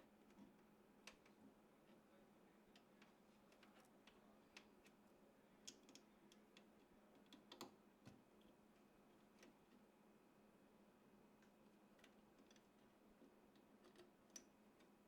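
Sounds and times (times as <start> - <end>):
faint steady hum: 0.0 - 15.0
computer parts clicking and tapping: 13.6 - 15.0.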